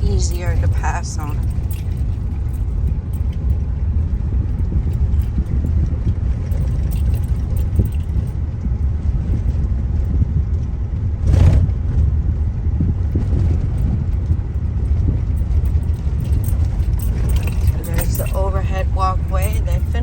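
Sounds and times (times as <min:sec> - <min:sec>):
car road noise rumble: 0:00.0 - 0:20.0
rush of noise: 0:11.0 - 0:18.4.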